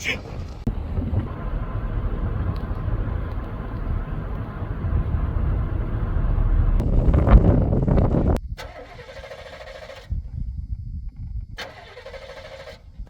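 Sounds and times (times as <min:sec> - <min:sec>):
car engine running: 0:00.7 - 0:08.4.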